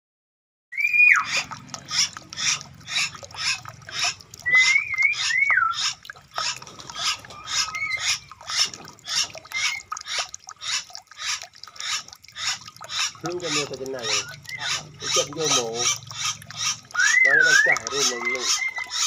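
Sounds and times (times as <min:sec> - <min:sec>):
bird whistling: 0:00.7 - 0:02.1, 0:04.4 - 0:05.9, 0:14.0 - 0:19.0.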